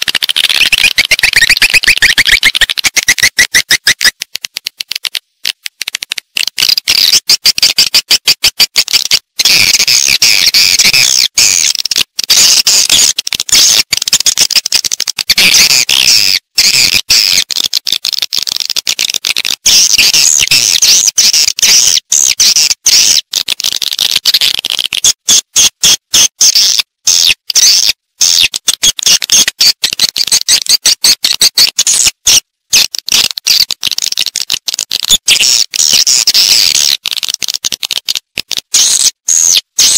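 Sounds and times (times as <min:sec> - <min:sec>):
swiftlets twittering: 0:00.0 - 0:04.2.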